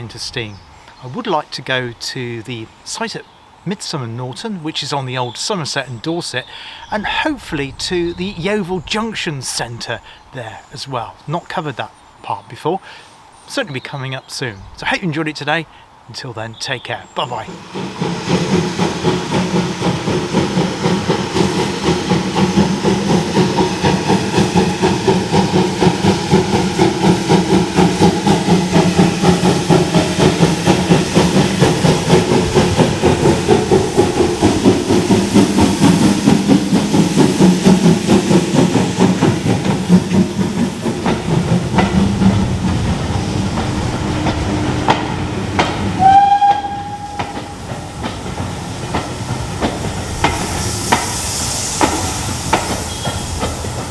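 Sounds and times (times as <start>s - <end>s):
steam locomotive running: 17.0s - 53.9s
locomotive whistle blast: 46.0s - 47.6s.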